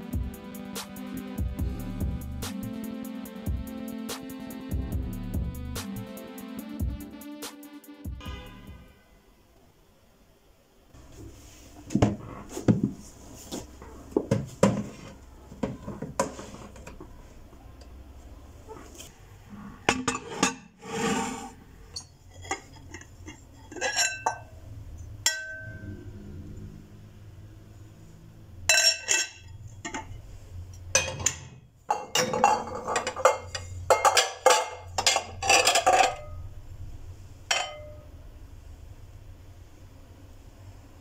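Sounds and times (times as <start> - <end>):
dishes and glassware clinking: 19.9 - 20.8, 21.9 - 24.6, 25.2 - 25.9, 28.7 - 30.2, 30.9 - 36.4, 37.5 - 38.1.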